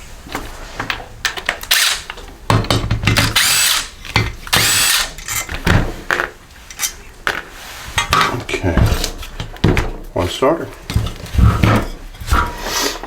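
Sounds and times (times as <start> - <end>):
power drill whine: 1.7 - 2.0, 3.4 - 3.9, 4.5 - 5.2.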